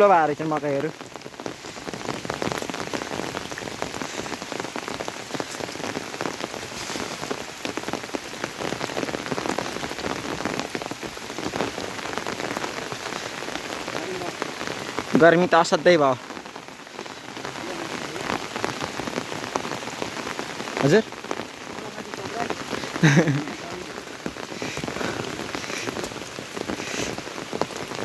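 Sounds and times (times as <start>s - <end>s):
hiss of falling rain: 0.0s - 28.0s
rain drops hitting an umbrella: 0.0s - 28.0s.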